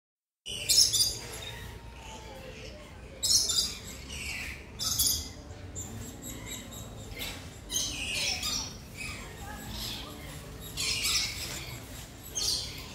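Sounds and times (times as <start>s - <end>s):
small birds chirping and squawking: 0.5s - 12.9s.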